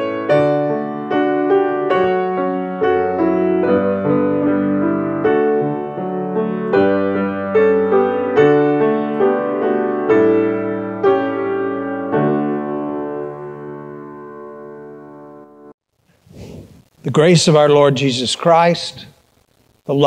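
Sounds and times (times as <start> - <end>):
piano playing slow chords: 0.0 - 15.8.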